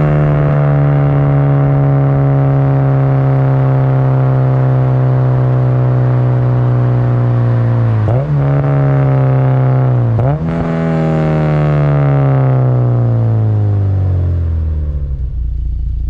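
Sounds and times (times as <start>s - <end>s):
throttle blips on downshifts: 0.0s - 14.3s
car engine decelerating: 0.0s - 16.0s.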